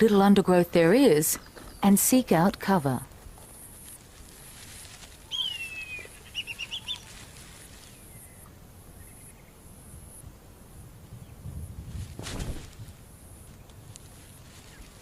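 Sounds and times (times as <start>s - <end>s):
faint high background hiss: 0.0s - 15.0s
bird whistling call: 5.3s - 7.1s.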